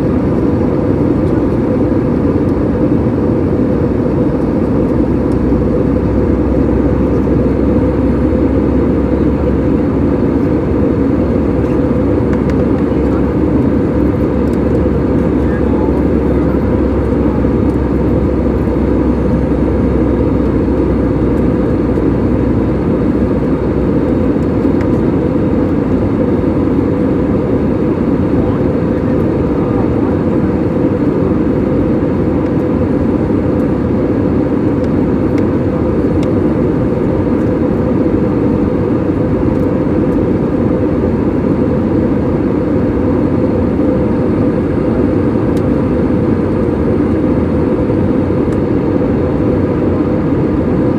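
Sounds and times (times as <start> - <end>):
airliner cabin engine drone: 0.0 - 50.9
deep hum: 3.0 - 32.2.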